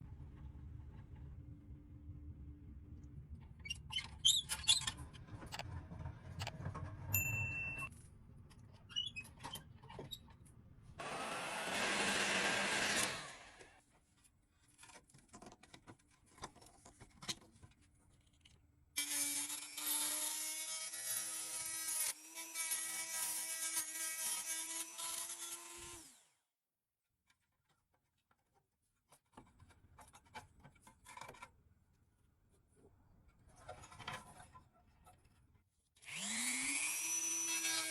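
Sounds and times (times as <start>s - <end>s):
hissing power tool: 11.0s - 13.7s
power tool running steadily: 11.0s - 13.7s, 36.1s - 37.9s
clicks and handling noise: 14.0s - 18.7s.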